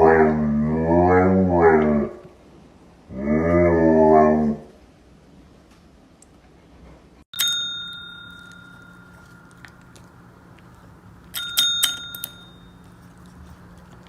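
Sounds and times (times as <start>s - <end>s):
small metal bell ringing: 7.4s - 9.8s, 11.3s - 13.0s.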